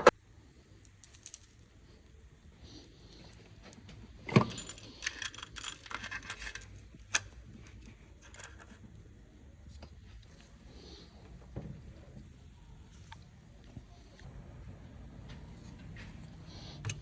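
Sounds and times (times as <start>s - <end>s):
small metal objects clinking: 0.9s - 1.7s, 4.4s - 6.8s.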